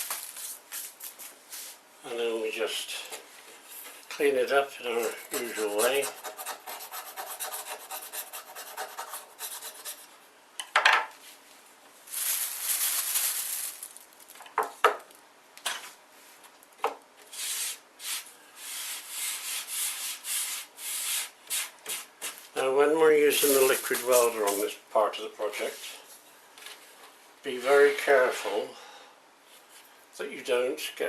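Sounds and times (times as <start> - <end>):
sanding wood by hand: 5.0 - 10.0.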